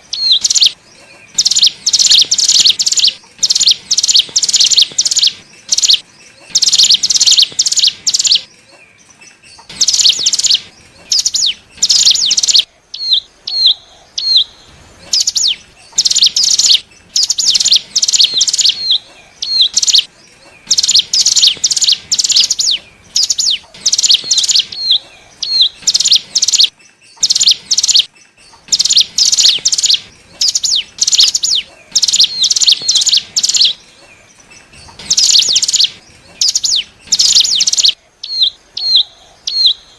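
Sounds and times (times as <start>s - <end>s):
bird call notes: 0.0s - 39.9s
bird chirping in rapid bursts: 0.0s - 39.9s.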